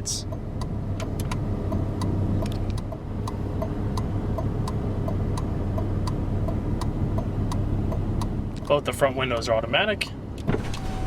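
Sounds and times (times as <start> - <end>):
car engine idling: 0.0 - 11.0
hazard light flasher ticking: 0.2 - 8.7.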